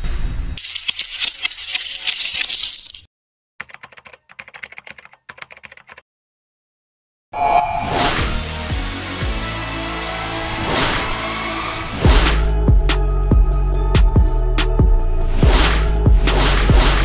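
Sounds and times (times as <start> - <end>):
keyboard typing clicks: 3.6 - 6.0.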